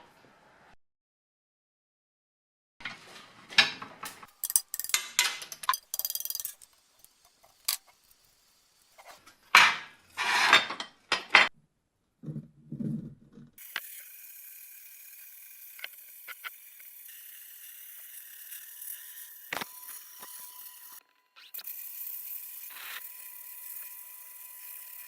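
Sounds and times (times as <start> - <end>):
metal tools clinking and scraping: 3.6 - 6.8, 9.0 - 11.5
dull low thumps: 12.2 - 13.6.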